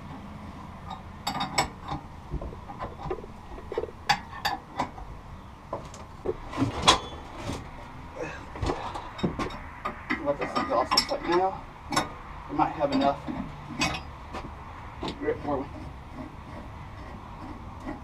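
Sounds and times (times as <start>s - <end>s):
hand tools clinking on metal: 8.8s - 12.1s, 12.8s - 14.2s.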